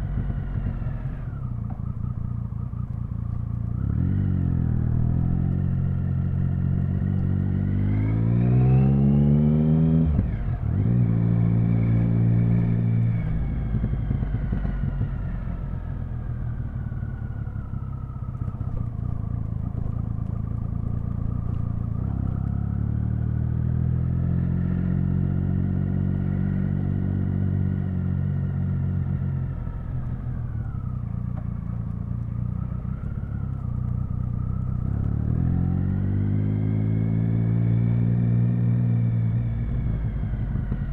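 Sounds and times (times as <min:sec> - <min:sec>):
motorcycle engine revving: 0:00.0 - 0:02.6, 0:03.6 - 0:40.9.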